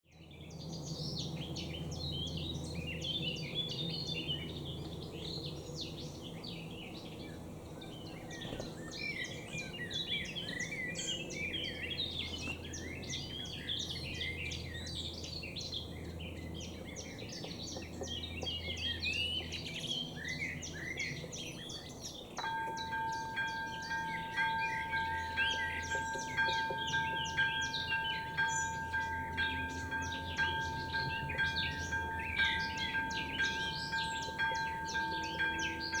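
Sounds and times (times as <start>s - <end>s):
songbirds chirping and singing: 0.1s - 36.0s
two-tone crossing warning bell: 22.4s - 36.0s.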